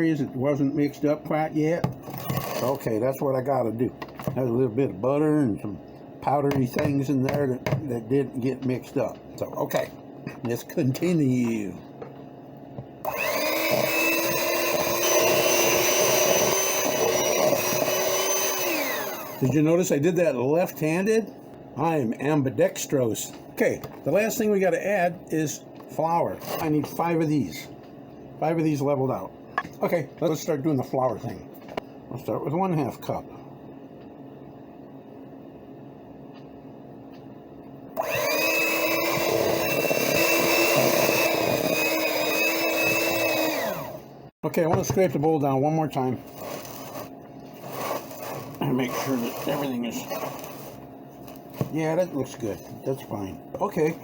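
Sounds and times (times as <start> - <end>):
electric mixer motor whining: 13.0 - 19.5, 38.0 - 44.0.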